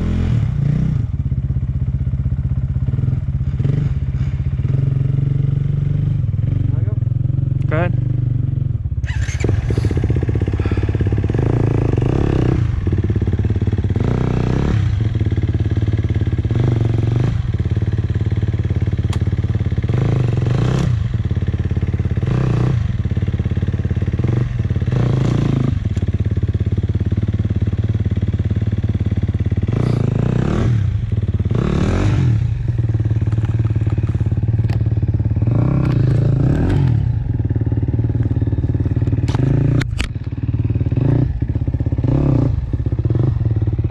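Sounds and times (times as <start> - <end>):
two-stroke engine revving: 0.0 - 1.2, 2.8 - 43.9
engine clatter: 9.0 - 43.9.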